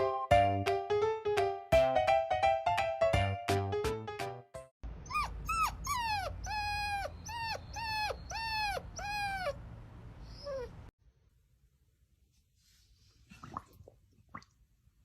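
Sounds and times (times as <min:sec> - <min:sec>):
puppy whimpering: 0:05.0 - 0:09.6, 0:10.2 - 0:10.9.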